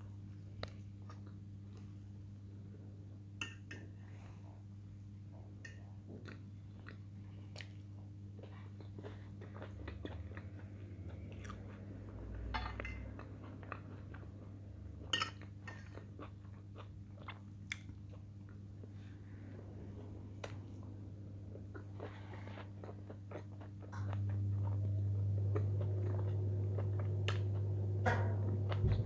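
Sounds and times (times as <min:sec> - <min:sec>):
person chewing food: 0:05.8 - 0:27.9
low hum: 0:08.4 - 0:16.1, 0:18.3 - 0:29.0.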